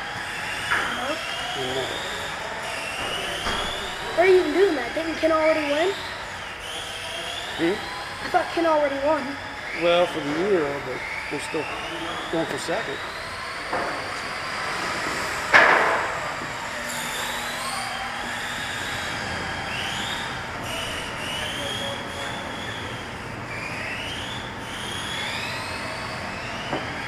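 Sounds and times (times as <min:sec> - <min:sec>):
electric rc car motors whining: 0:00.0 - 0:27.0.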